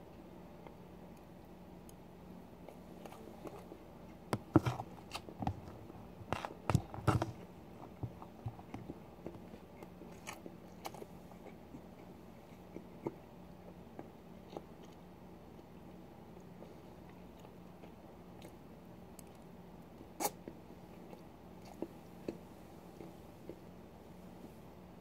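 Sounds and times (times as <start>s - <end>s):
person chewing with wet clicks: 2.6s - 23.7s.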